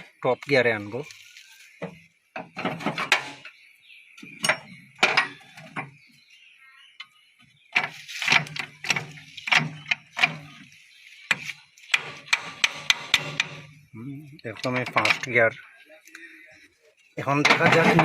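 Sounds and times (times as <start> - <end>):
gearbox metal clunks and clicks: 2.4 - 3.6, 4.2 - 6.1, 7.8 - 10.7, 11.3 - 13.8, 14.4 - 15.6.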